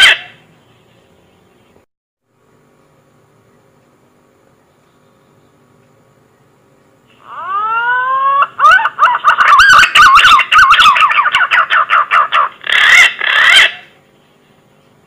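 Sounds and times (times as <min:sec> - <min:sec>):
pigeon call whistles: 0:07.4 - 0:13.9.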